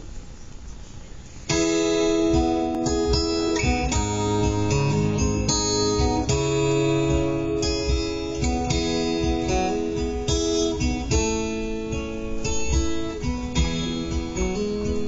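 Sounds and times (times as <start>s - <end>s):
keyboard and acoustic guitar chords: 1.4s - 15.0s.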